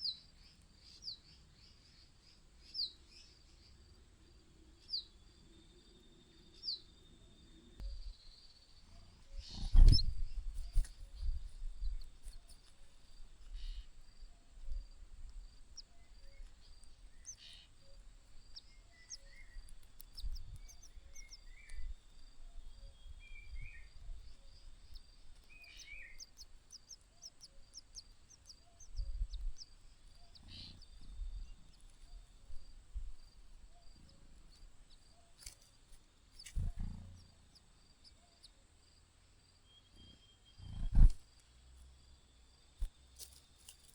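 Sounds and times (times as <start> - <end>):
low bumps and rumbles: 9.4 - 12.2
high bird chirps: 15.8 - 21.9, 22.6 - 32.2.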